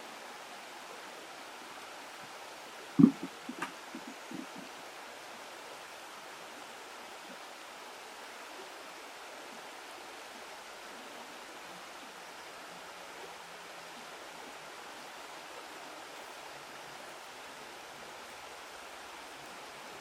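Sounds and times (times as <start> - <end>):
flowing water: 0.0 - 20.0
sharp thump: 3.0 - 4.6
small knocks: 3.0 - 4.6.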